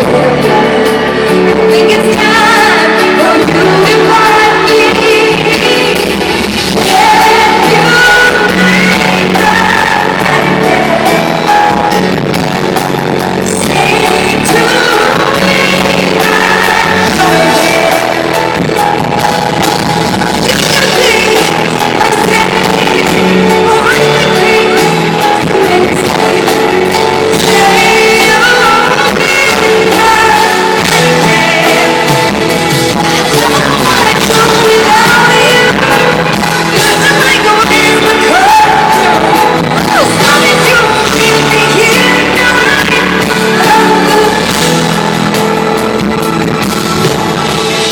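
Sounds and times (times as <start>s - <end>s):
woman singing: 0.0s - 46.0s
amplified band playing: 0.0s - 47.9s.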